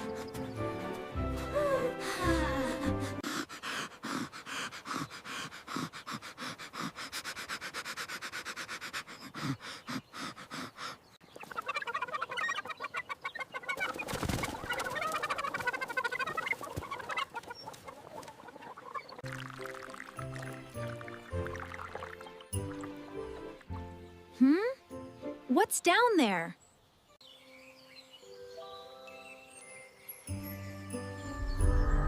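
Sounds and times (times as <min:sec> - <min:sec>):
chickens clucking: 0:09.4 - 0:19.2.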